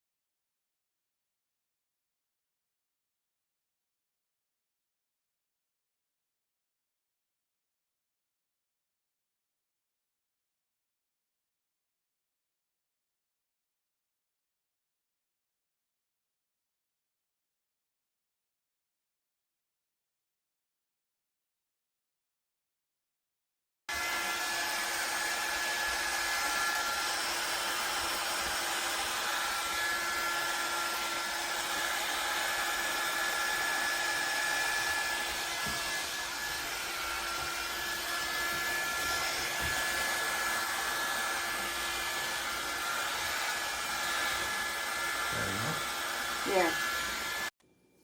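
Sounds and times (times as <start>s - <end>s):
hot air brush whirring: 23.9s - 47.5s.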